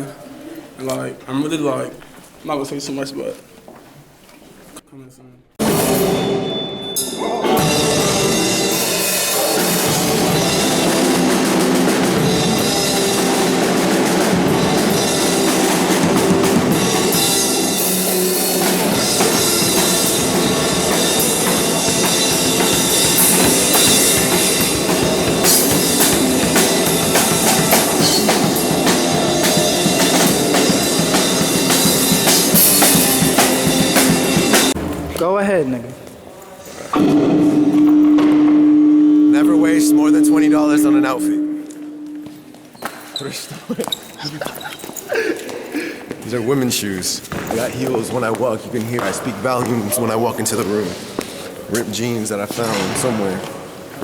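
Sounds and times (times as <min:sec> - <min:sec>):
music with drum beat: 0:05.6 - 0:35.0.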